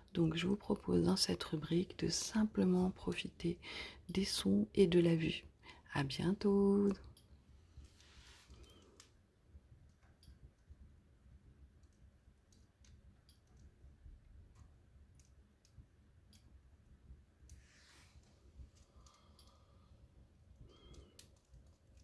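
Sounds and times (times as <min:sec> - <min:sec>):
wood fire crackling: 0:11.4 - 0:22.0.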